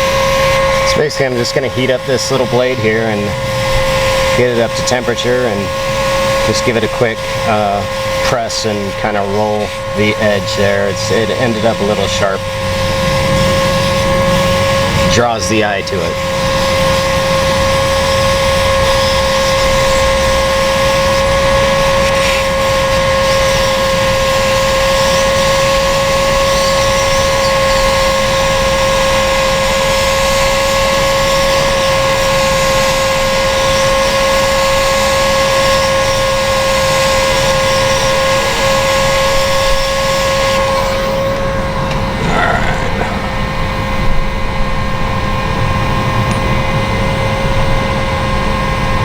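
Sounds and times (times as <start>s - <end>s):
hot air rushing: 0.0s - 23.0s, 40.5s - 47.3s
heat gun motor whine: 0.0s - 49.0s.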